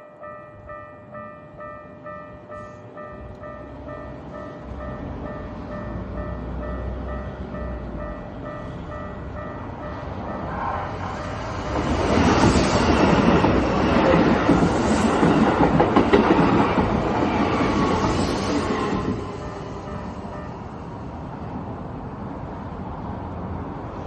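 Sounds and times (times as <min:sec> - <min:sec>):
level crossing warning bell: 0:00.0 - 0:12.3, 0:12.9 - 0:21.4
train wheels clattering past: 0:09.9 - 0:20.6.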